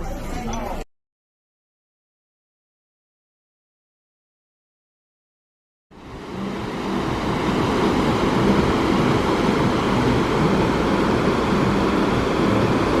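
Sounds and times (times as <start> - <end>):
steady rushing rumble: 5.9 - 13.0.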